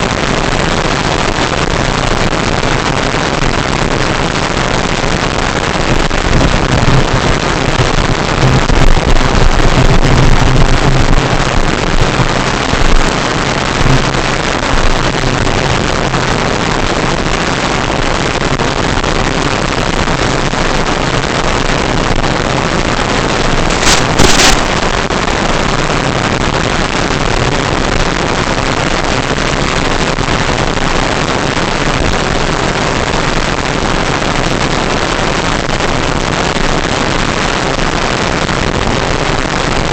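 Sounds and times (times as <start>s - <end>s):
low motor hum: 8.3s - 14.9s.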